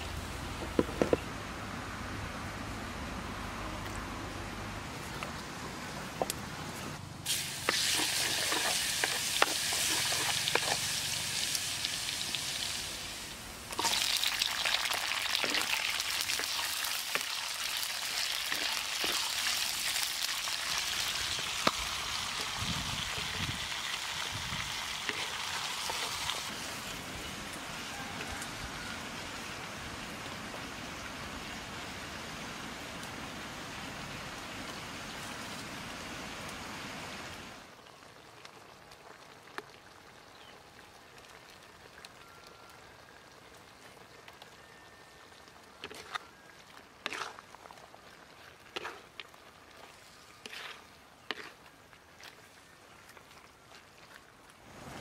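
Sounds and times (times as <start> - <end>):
vegetables sizzling in a wok: 7.2 - 33.4, 47.0 - 47.4, 49.8 - 51.6
spatula scraping a wok: 7.7 - 10.9, 25.1 - 26.6, 47.0 - 47.4, 48.7 - 49.1, 49.9 - 51.7.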